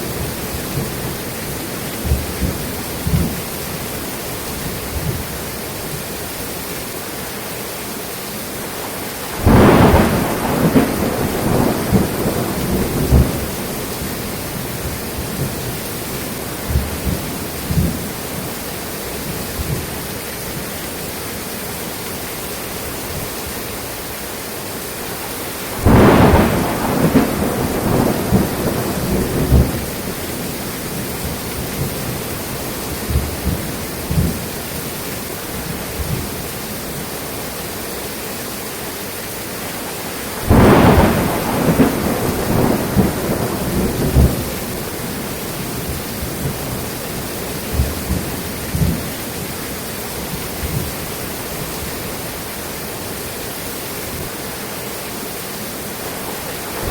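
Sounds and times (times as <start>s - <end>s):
steady rain: 0.0s - 56.9s
thunder claps: 2.0s - 3.4s, 9.4s - 15.7s, 16.4s - 18.1s, 25.7s - 32.2s, 32.8s - 34.5s, 40.4s - 49.2s, 56.7s - 56.9s
faint thunder rumbles: 2.0s - 3.8s, 9.2s - 18.5s, 25.7s - 34.8s, 40.3s - 52.5s, 56.0s - 56.9s.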